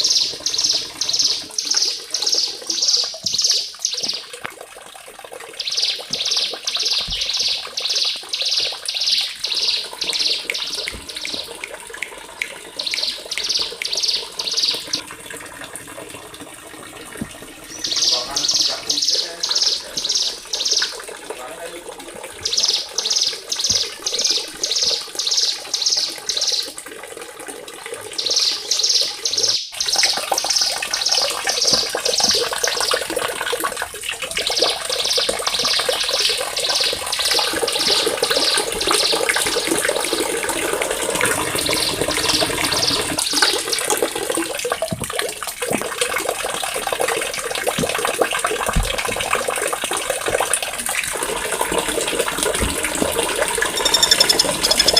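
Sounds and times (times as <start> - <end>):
songbird sharp high notes: 53.6 - 54.9.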